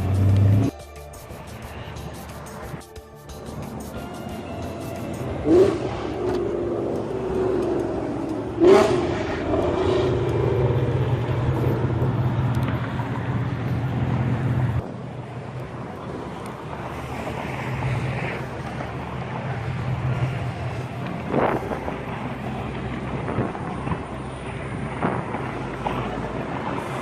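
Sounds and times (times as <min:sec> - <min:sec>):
car engine revving: 0:00.0 - 0:00.7, 0:04.8 - 0:14.8.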